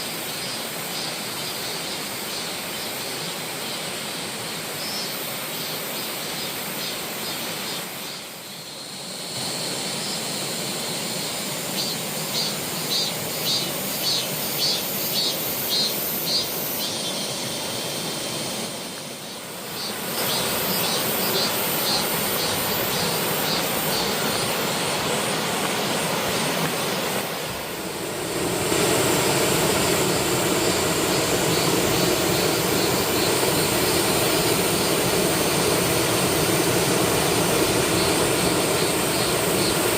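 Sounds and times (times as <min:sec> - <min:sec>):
waterfall rushing: 0:17.1 - 0:39.9.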